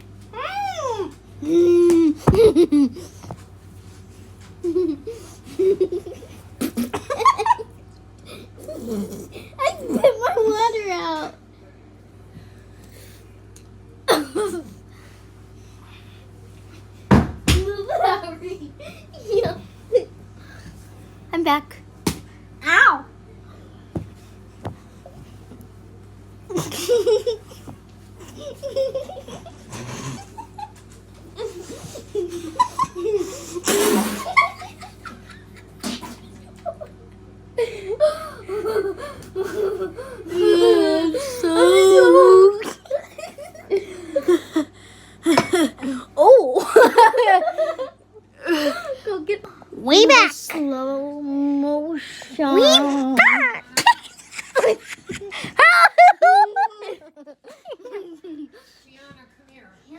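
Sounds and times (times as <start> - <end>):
people laughing: 1.7 - 3.2, 4.6 - 7.8, 31.4 - 46.0, 46.6 - 49.2, 52.6 - 58.8.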